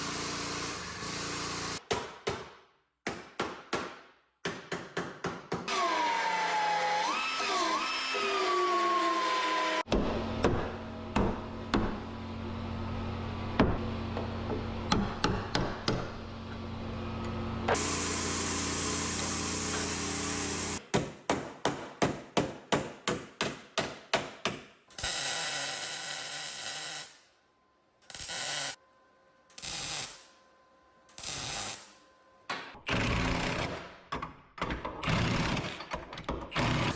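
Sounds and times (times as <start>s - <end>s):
hissing tool noise: 17.7s - 20.8s.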